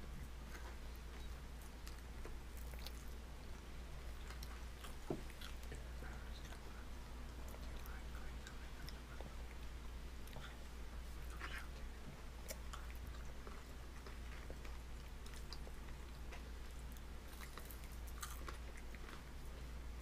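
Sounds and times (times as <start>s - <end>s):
steady low hum: 0.0s - 20.0s
baby chewing and mouth-smacking: 0.1s - 20.0s.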